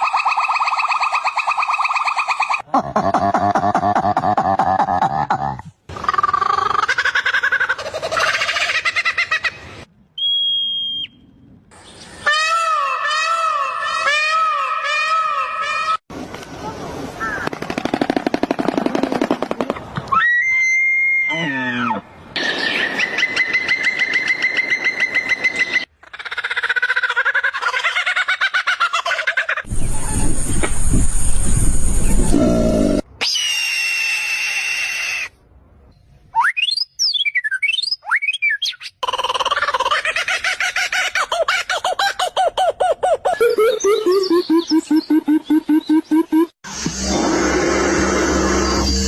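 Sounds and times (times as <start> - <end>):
bird whistle swooping down: 10.2 - 11.2.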